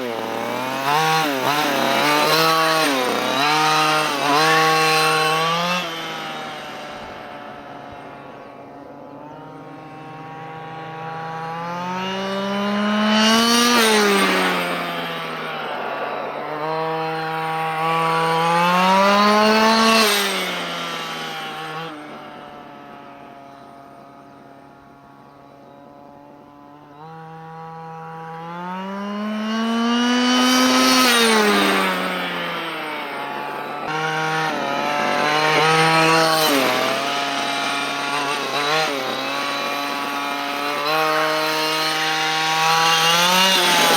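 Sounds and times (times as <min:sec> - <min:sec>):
model buggy two-stroke engine running: 0:00.0 - 0:43.9.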